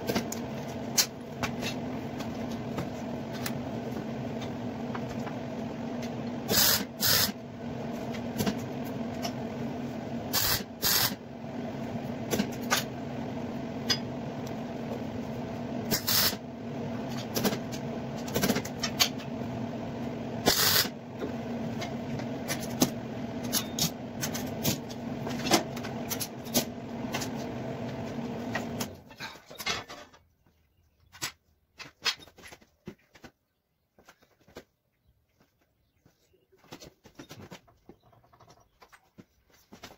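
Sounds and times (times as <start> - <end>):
machine hum: 0.0 - 29.3.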